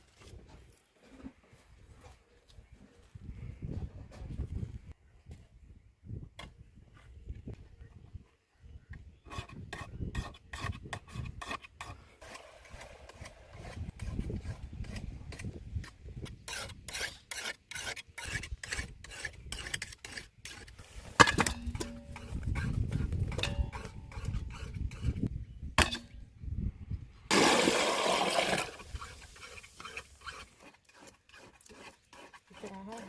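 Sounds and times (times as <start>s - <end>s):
rasping scrapes: 9.3s - 15.6s, 16.2s - 25.3s, 28.8s - 33.0s.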